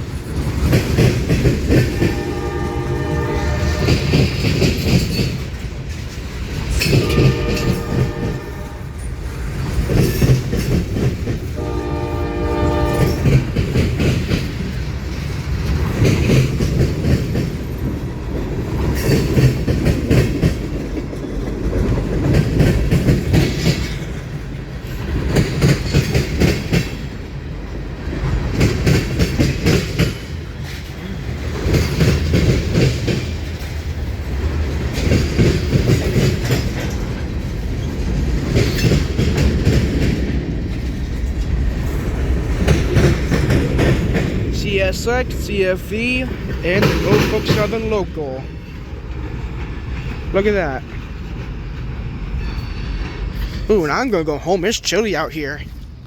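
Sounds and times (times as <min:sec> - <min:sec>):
train wheels clattering: 0:00.0 - 0:55.9
train horn blast: 0:01.9 - 0:04.3, 0:06.8 - 0:09.1, 0:11.6 - 0:13.6.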